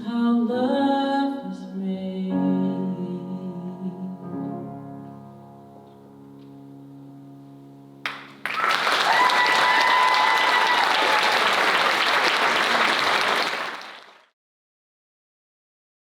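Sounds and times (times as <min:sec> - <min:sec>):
audience applauding: 0:08.1 - 0:14.3.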